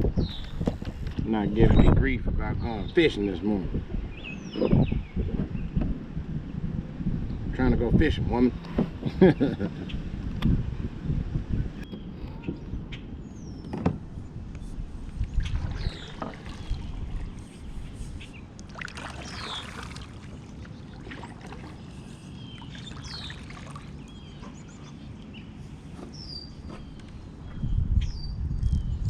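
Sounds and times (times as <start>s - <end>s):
wind rumble on microphone: 0.0s - 29.0s
birds whistling calls: 4.1s - 5.8s, 11.6s - 13.9s, 14.6s - 29.0s
kayak paddle splashing in water: 15.0s - 26.2s.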